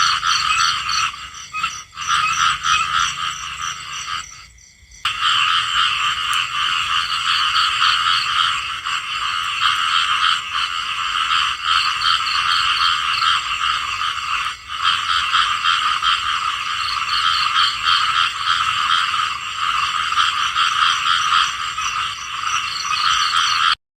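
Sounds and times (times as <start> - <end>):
frogs croaking in chorus: 0.0 - 23.8.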